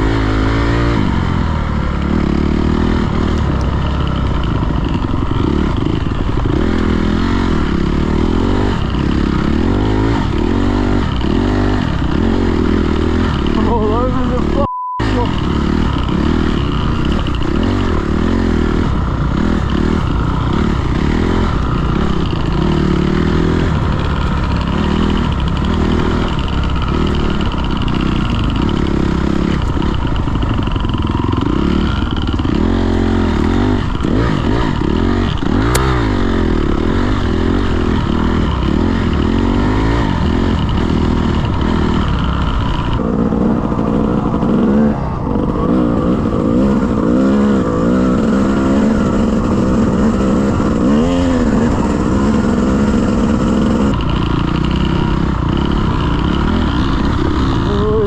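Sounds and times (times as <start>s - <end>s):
dirt bike engine revving: 0.0s - 58.0s
sharp click: 35.6s - 36.0s.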